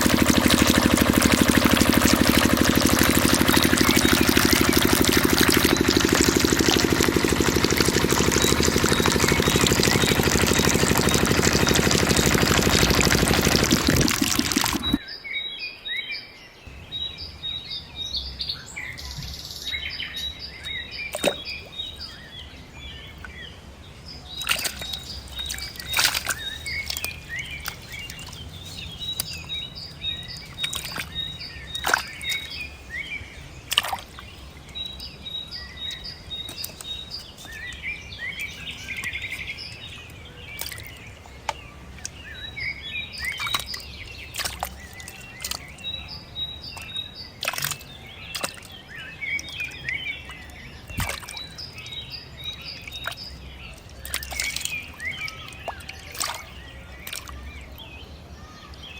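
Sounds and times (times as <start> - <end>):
small birds chirping: 0.0 - 58.9.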